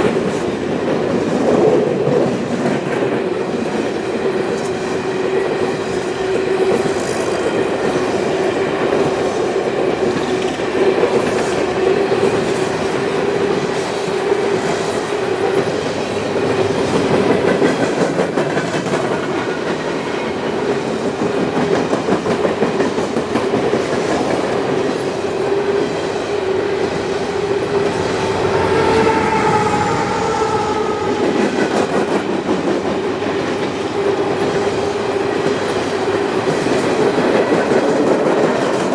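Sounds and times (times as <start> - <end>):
train wheels clattering on rails: 0.0 - 38.9
high-pitched whining tones: 26.9 - 32.0.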